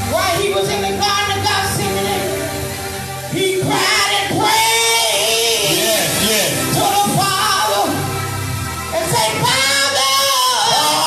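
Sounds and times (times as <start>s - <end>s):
instrumental backing: 0.0s - 11.0s
voices singing: 3.3s - 8.2s, 8.9s - 11.0s.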